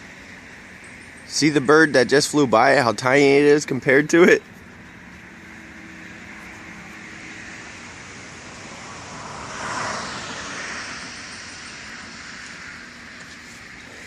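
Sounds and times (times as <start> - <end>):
steady background hum: 0.0 - 14.0
vehicle passing by: 3.9 - 14.0.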